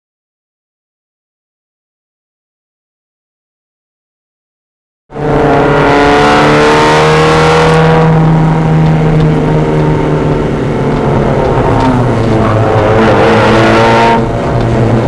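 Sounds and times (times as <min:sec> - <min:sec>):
race car engine accelerating: 0:05.1 - 0:15.0.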